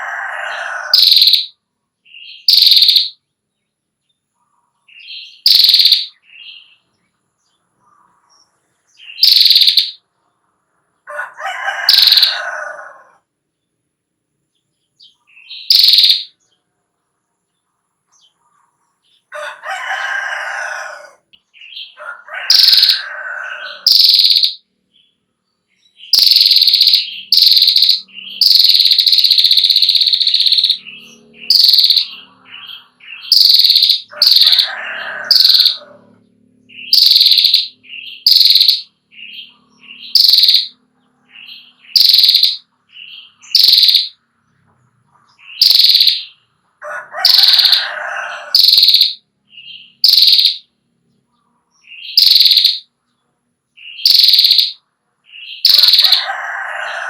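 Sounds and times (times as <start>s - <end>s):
rooster crowing: 0.0s - 1.5s, 11.0s - 13.3s, 19.3s - 24.5s, 28.7s - 37.7s, 46.8s - 49.2s, 55.7s - 57.0s
bird high rapid trills: 0.0s - 1.6s, 2.4s - 3.2s, 5.4s - 6.2s, 9.1s - 10.0s, 11.7s - 12.9s, 15.6s - 16.3s, 22.4s - 24.6s, 26.1s - 42.7s, 43.3s - 44.2s, 45.5s - 46.4s, 47.2s - 49.2s, 49.9s - 50.7s, 52.1s - 52.8s, 54.0s - 54.8s, 55.6s - 57.0s.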